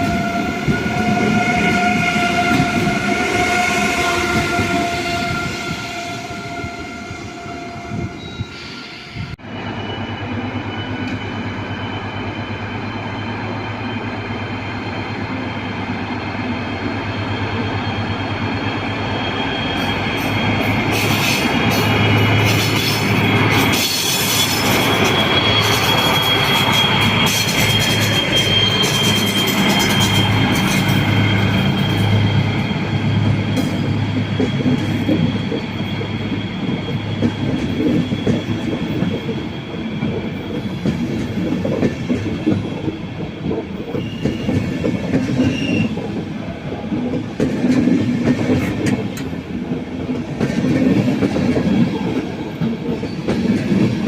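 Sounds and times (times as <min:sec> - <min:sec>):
high wheel squeal: 0:00.0 - 0:46.2
train wheels clattering over rails: 0:19.7 - 0:54.0.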